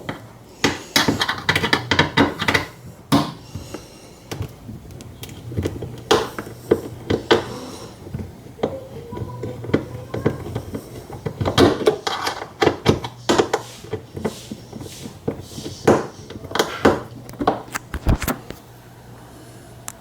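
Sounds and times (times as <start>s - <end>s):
hand tools knocking and clicking: 0.0s - 3.4s, 5.6s - 17.8s.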